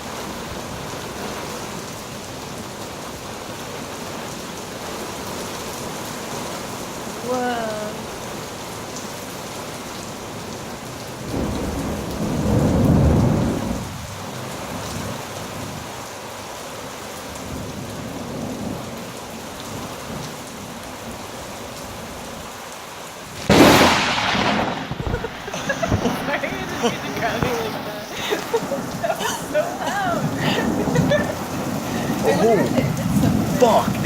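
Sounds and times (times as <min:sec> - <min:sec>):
heavy rain: 0:00.0 - 0:34.0
loud thunderclap: 0:11.3 - 0:14.1, 0:23.4 - 0:27.9
low rumble of thunder: 0:11.3 - 0:15.7, 0:23.4 - 0:26.2.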